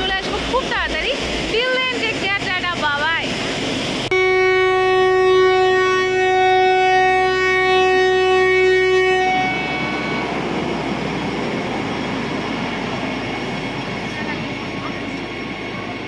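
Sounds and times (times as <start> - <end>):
train rumbling on track: 0.0 - 16.0
train horn blast: 4.1 - 10.4.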